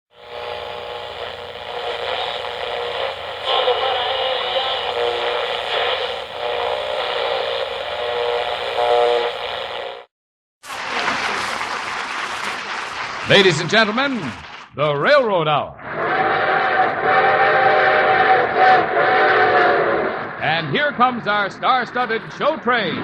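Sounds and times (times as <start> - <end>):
applause: 10.7 - 14.8.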